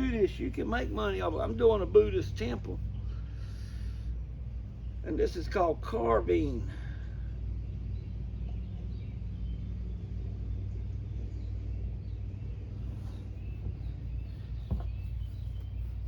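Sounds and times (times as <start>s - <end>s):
steady low rumble: 0.0s - 16.0s
faint bird chirps: 6.8s - 16.0s.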